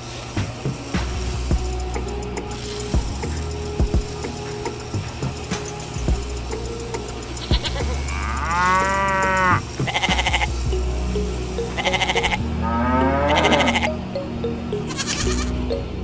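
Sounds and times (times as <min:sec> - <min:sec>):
steady low hum: 0:00.0 - 0:16.0
animal bleating: 0:13.2 - 0:13.9.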